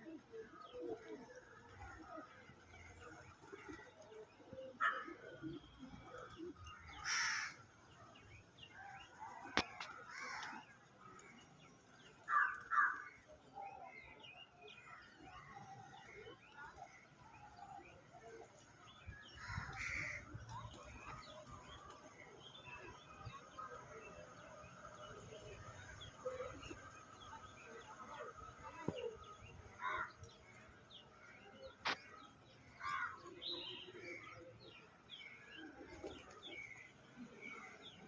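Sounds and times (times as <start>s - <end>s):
small birds chattering: 0.1s - 38.0s
crow cawing: 7.0s - 7.6s.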